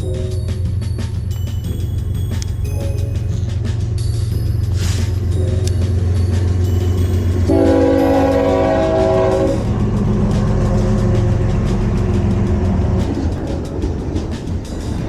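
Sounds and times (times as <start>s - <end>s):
train rumbling past: 0.0s - 15.0s
train horn blast: 7.4s - 9.9s.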